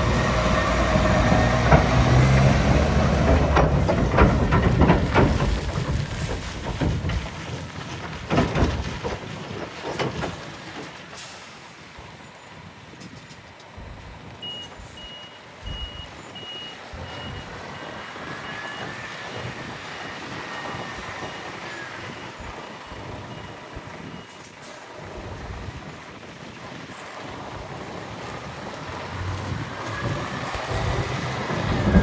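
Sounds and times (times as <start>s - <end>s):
rumbling knocks: 0.0s - 11.1s, 28.2s - 32.0s
truck reversing alarm beeping: 14.2s - 24.6s.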